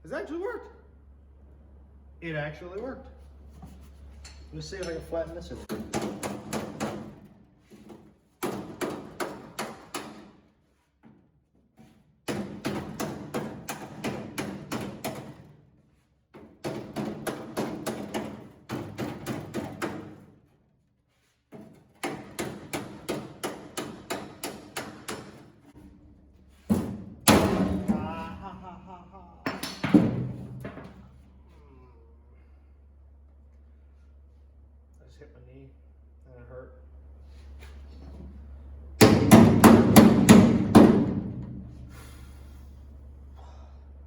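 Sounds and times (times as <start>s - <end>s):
hammer striking sheet metal: 26.7s - 28.2s, 39.0s - 41.7s.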